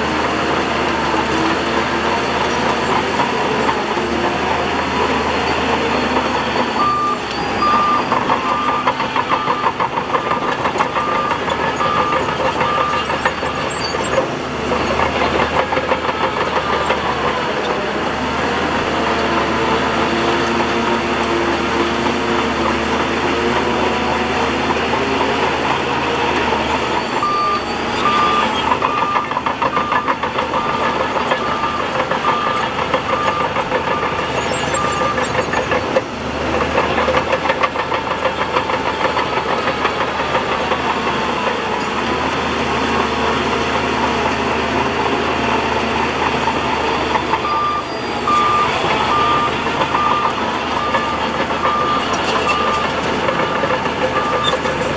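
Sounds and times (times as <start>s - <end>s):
diesel machinery engines running: 0.0s - 54.9s
reversing alarm beeping: 0.5s - 17.8s, 20.2s - 36.0s, 46.1s - 54.9s.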